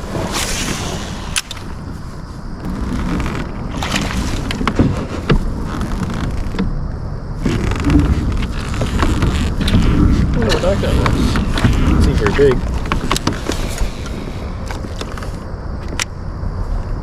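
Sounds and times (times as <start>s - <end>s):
low rumble: 0.0s - 17.0s
water splashing: 2.6s - 6.8s.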